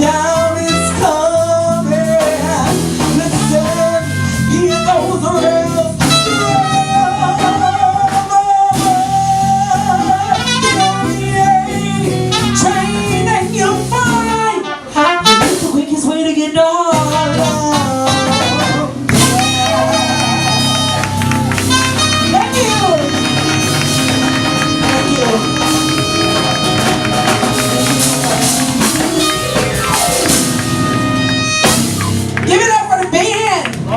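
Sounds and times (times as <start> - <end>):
walking bass line: 0.0 - 14.6, 16.9 - 33.9
drum kit and cymbals beat: 0.0 - 16.0, 16.9 - 32.6
jazz band playing swing: 0.0 - 33.9
falling pitch slide: 18.4 - 32.4.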